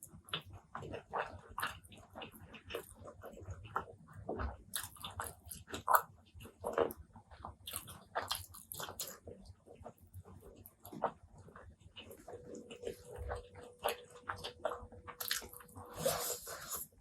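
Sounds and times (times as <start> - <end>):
person chewing food: 0.2 - 17.0.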